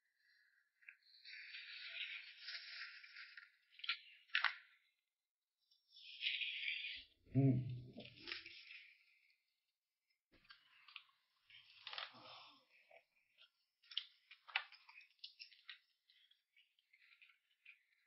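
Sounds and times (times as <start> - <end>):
person chewing: 10.4 - 18.0.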